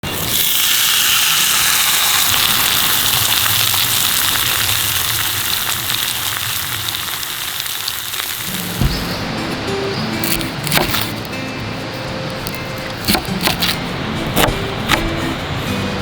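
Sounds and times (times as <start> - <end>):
steak sizzling over a campfire: 0.0 - 11.2
fire popping and crackling: 1.1 - 9.3.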